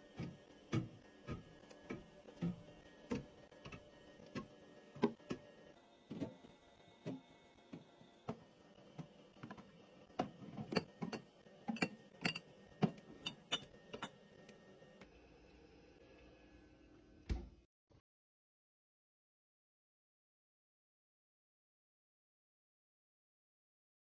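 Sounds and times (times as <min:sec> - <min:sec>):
containers clicking and knocking: 0:09.0 - 0:14.2.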